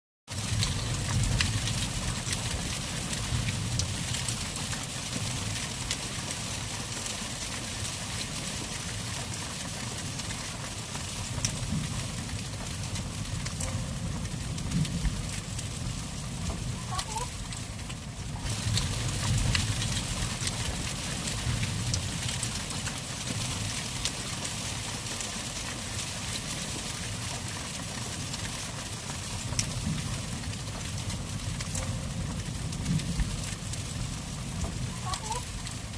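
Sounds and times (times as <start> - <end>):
hail and rain hissing: 0.3 - 35.9
hailstones ticking: 0.3 - 35.9
low rumble: 11.5 - 17.0.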